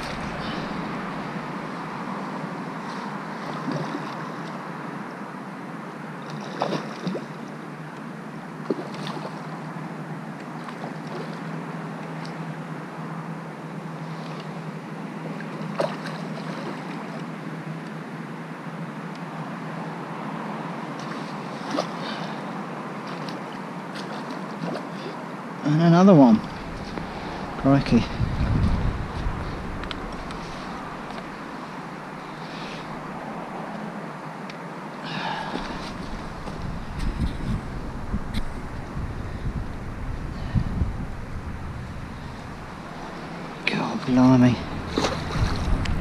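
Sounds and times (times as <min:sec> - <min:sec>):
wind and rain hissing: 0:00.0 - 0:03.2, 0:25.6 - 0:34.2, 0:35.0 - 0:46.0
blustery wind: 0:00.0 - 0:46.0.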